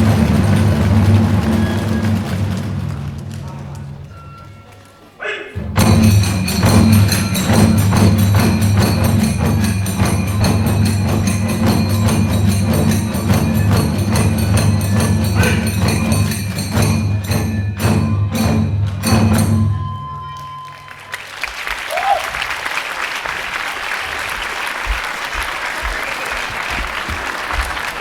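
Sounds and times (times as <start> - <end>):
drums beating: 0.0 - 4.2, 5.6 - 20.3, 20.9 - 28.0
hand cymbals clashing: 5.6 - 21.1.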